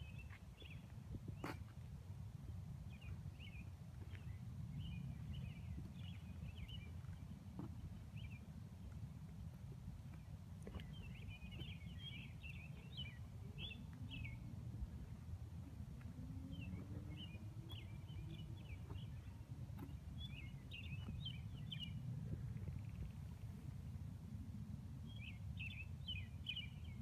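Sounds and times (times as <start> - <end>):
steady low rumble: 0.0 - 27.0
songbird twittering: 16.5 - 22.0.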